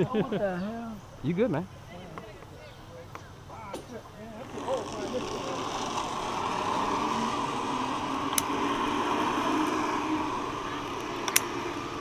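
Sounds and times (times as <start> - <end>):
pulleys rolling along steel cable: 4.3 - 12.0
sharp metallic clicks: 11.0 - 11.6.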